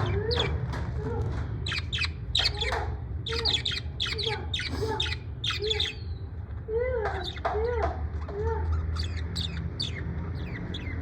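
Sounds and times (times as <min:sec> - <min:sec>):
parrot squawking: 0:01.6 - 0:06.2, 0:08.3 - 0:11.0.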